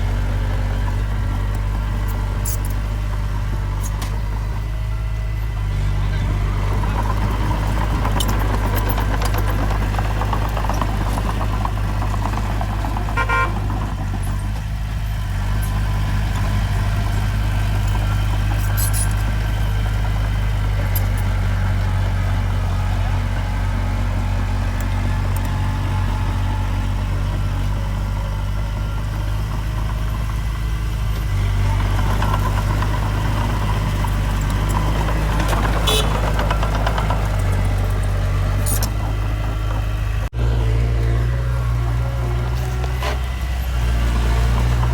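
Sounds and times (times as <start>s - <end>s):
heavy diesel engine droning: 0.0s - 44.9s
horn toot: 13.2s - 13.7s, 35.8s - 36.4s.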